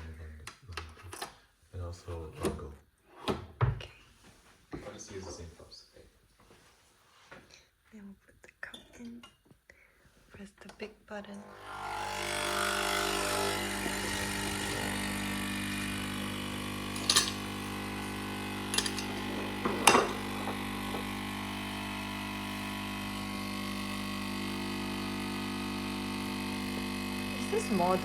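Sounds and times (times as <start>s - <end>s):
coffee machine pump humming: 11.4s - 28.0s.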